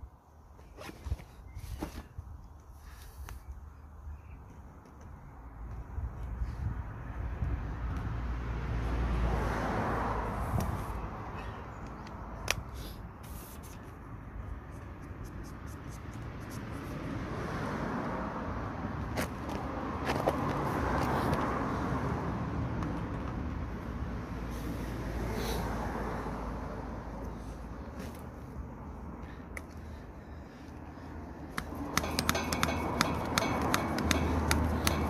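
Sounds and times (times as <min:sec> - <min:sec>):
car passing: 0:07.0 - 0:11.4, 0:16.6 - 0:35.0.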